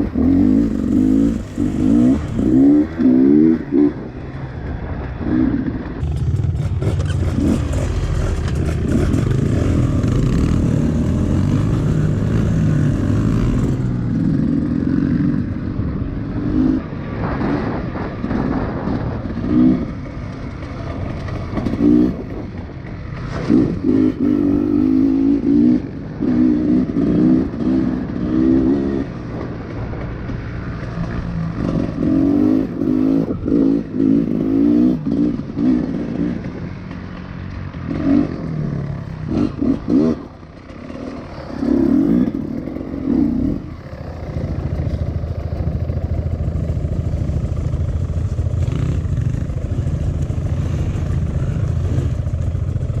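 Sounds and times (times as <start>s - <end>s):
motorbike engine revving: 0.0s - 4.2s, 5.2s - 15.4s, 37.8s - 53.0s.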